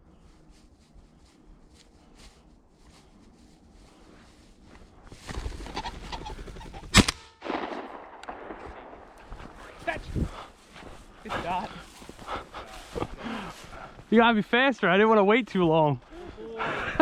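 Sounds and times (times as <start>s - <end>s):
shotgun blast: 6.9s - 9.1s.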